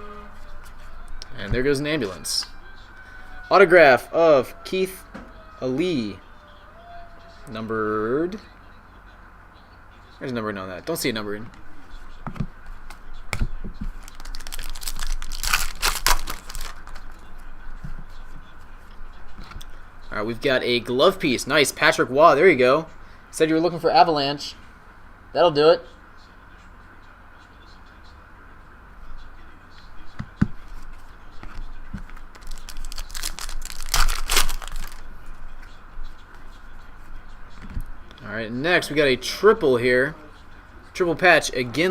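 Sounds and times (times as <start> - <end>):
plastic wrapper crinkling: 13.9 - 17.2, 32.3 - 35.1.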